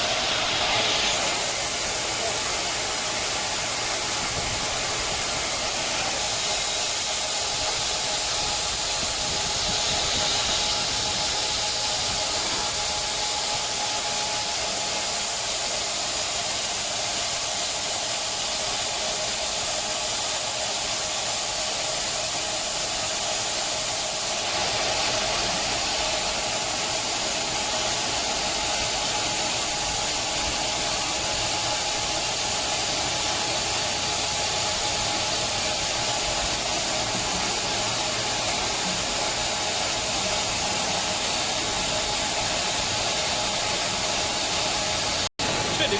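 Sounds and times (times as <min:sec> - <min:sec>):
band saw hiss: 0:00.0 - 0:14.8.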